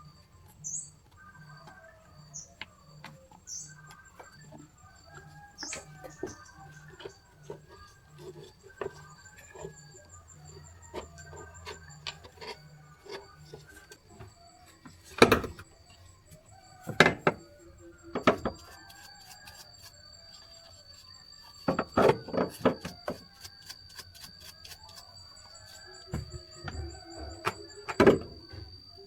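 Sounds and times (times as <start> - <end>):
knocks and clanks on parts: 2.3 - 16.0, 16.8 - 17.5, 18.1 - 18.8, 21.6 - 23.2, 25.6 - 29.0.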